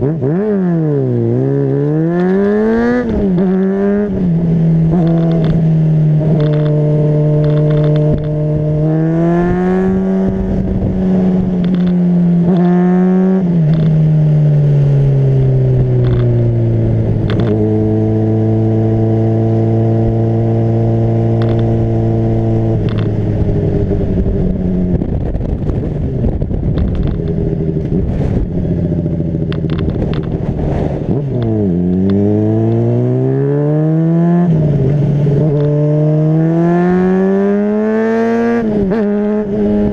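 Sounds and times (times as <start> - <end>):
motorcycle engine running: 0.0 - 33.5
wind rushing: 21.8 - 31.8.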